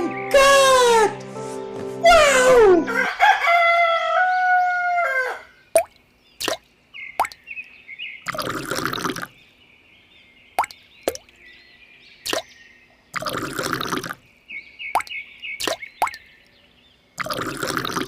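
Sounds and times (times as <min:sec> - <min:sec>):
rooster crowing: 0:02.2 - 0:05.6
water plops: 0:05.8 - 0:07.4, 0:08.3 - 0:09.3, 0:10.6 - 0:11.3, 0:13.2 - 0:14.2, 0:15.0 - 0:16.2, 0:17.2 - 0:18.0
water splash: 0:13.2 - 0:14.2.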